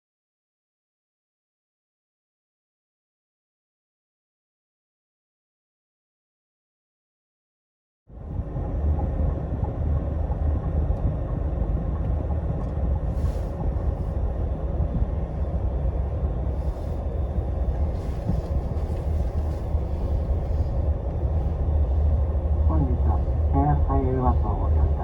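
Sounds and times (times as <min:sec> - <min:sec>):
bus engine and road rumble: 0:08.1 - 0:25.0.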